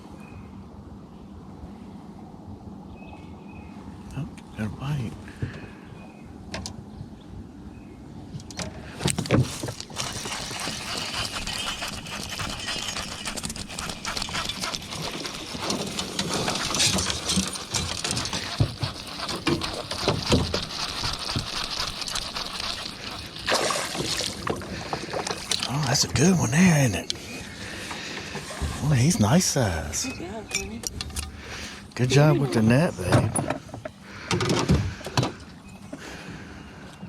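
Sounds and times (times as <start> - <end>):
water splashing: 9.4 - 26.0.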